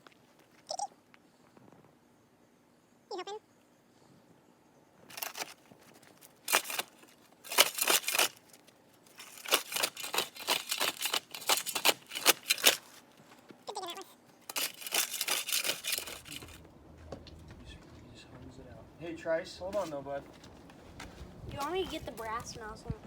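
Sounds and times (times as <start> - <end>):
crisp crunching strokes: 5.1 - 16.6.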